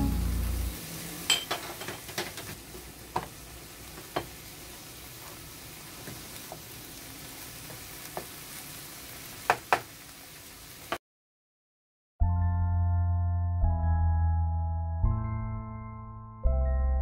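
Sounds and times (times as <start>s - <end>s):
meat sizzling in a frying pan: 0.0s - 11.0s
spatula knocking against pan: 4.0s - 4.4s, 9.4s - 9.9s.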